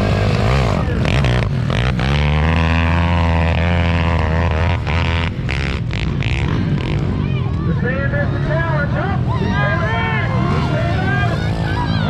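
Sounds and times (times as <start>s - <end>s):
pit bike engine revving high: 0.0s - 7.3s, 9.8s - 12.0s.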